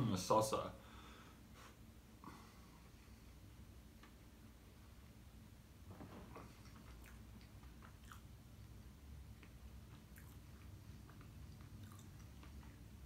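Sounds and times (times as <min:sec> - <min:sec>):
person chewing pastry: 0:06.9 - 0:08.7, 0:09.4 - 0:13.0.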